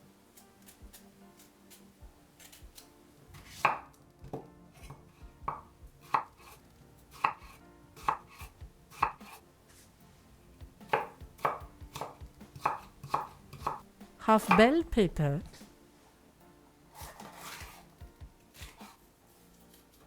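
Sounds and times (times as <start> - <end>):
knife knocking on cutting board: 10.9 - 13.8.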